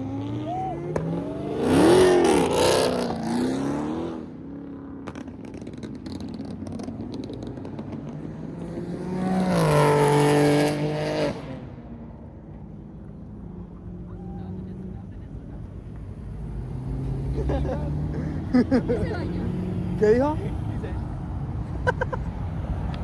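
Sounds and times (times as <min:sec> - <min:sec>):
car engine revving: 0:00.0 - 0:04.3, 0:15.9 - 0:23.0.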